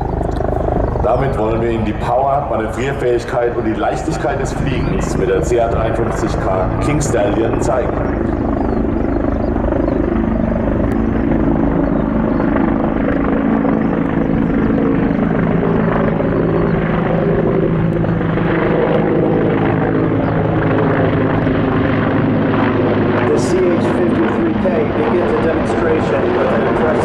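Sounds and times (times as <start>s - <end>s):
helicopter rotor rumble: 0.0s - 27.0s
turbine hum: 0.0s - 27.0s.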